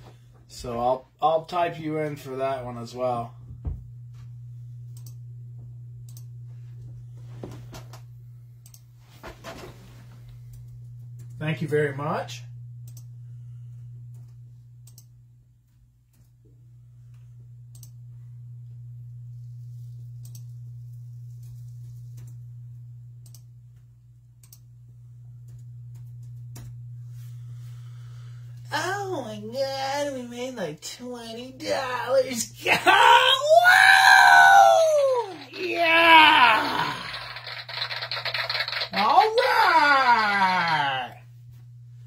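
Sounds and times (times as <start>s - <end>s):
low electrical hum: 0.0s - 42.0s
computer keys clicking: 14.8s - 15.1s, 23.2s - 23.4s, 37.6s - 39.0s.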